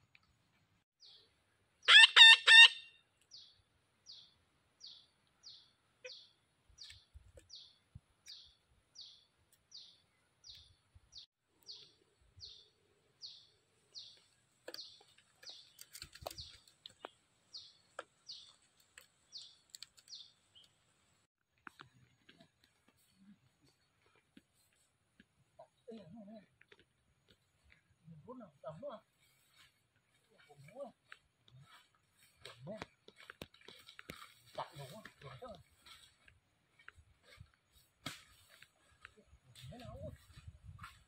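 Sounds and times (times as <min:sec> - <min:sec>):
bird calls: 0:01.8 - 0:18.7.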